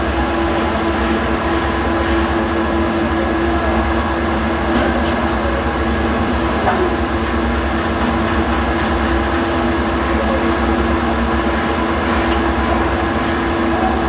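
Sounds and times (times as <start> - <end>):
machinery humming: 0.0 - 14.0.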